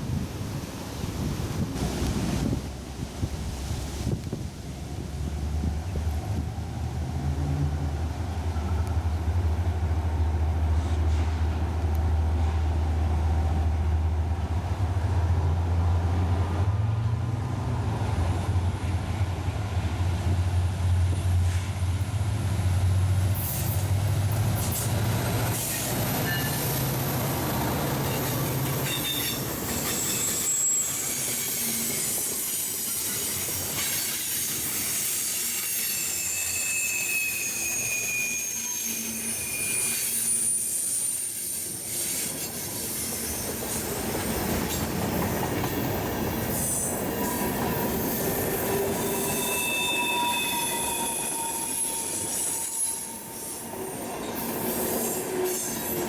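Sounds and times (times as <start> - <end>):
train rumbling past: 0.0 - 56.0
train wheel squeal: 23.4 - 56.0.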